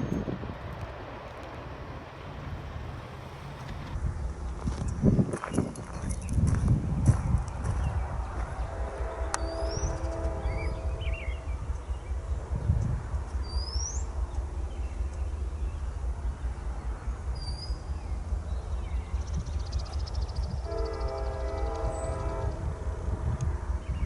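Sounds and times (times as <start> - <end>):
train locomotive rumbling: 0.0 - 24.0
birds chirping: 7.6 - 22.6
train air horn chord: 8.6 - 11.7, 20.6 - 23.2.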